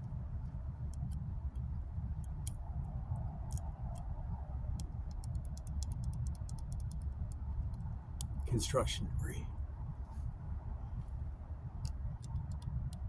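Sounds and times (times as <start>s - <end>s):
steady low rumble: 7.1s - 13.0s.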